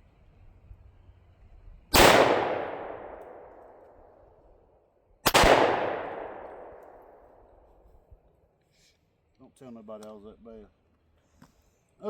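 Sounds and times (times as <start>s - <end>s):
pistol shots echoing: 2.0s - 3.8s, 5.3s - 7.3s.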